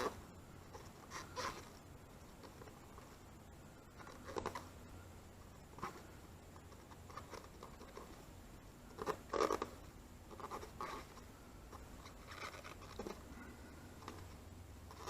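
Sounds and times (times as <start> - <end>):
fingernail scratching over plastic: 0.0 - 1.8, 4.0 - 4.7, 6.6 - 8.2, 8.9 - 13.3, 14.0 - 15.0.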